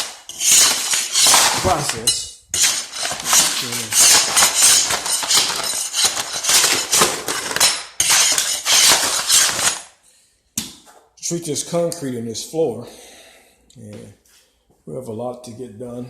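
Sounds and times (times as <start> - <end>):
tiles scraping and clinking: 0.0 - 10.0.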